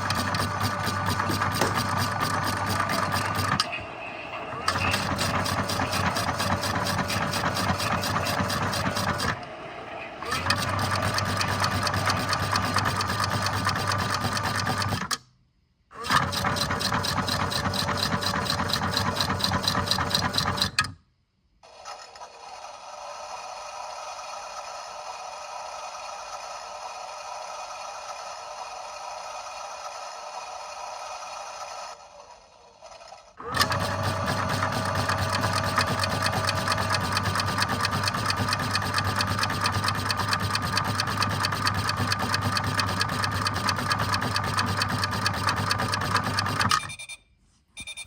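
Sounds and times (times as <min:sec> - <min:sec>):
machine rattling: 0:00.0 - 0:09.4, 0:10.2 - 0:15.2, 0:16.0 - 0:21.0, 0:32.8 - 0:46.8.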